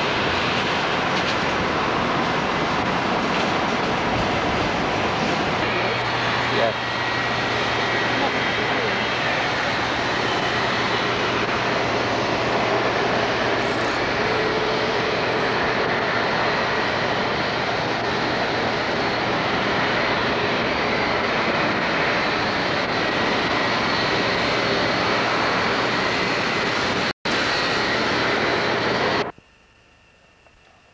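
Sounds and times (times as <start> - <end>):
jet engines roaring: 0.0 - 29.4.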